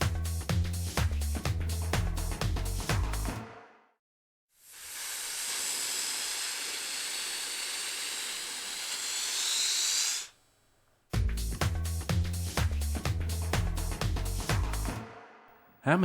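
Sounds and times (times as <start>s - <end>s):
steady hiss: 4.6s - 10.5s.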